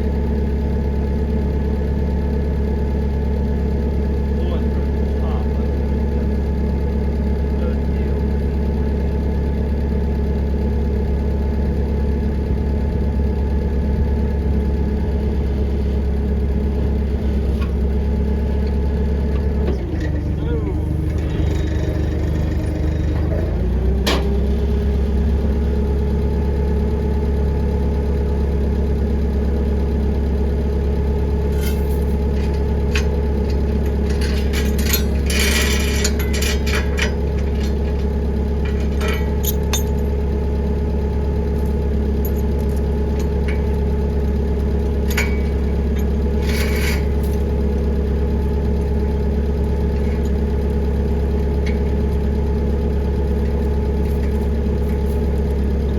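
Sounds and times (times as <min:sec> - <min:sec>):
engine running steadily: 0:00.0 - 0:55.9
metallic clanks and knocks: 0:24.0 - 0:24.4, 0:31.4 - 0:40.2, 0:45.0 - 0:47.5.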